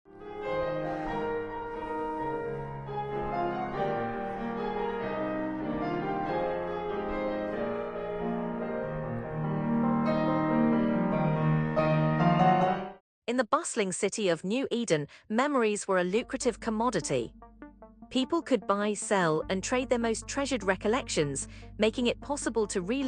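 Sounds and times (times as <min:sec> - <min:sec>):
piano playing slow chords: 0:00.1 - 0:13.0, 0:17.3 - 0:18.2.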